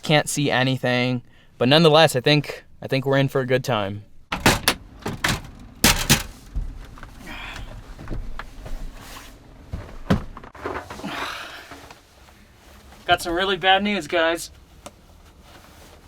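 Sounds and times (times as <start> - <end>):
sharp knocks and thuds: 9.7 - 10.6
soft rustling: 11.7 - 16.0.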